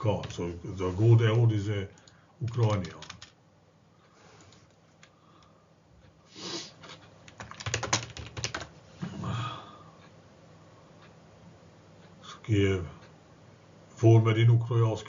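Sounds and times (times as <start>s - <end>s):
computer keyboard typing: 1.9s - 3.4s, 7.2s - 8.8s.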